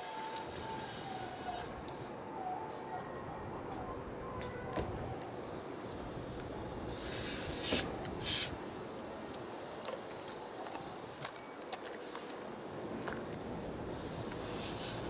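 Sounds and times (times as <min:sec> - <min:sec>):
short hisses: 0:06.9 - 0:08.6.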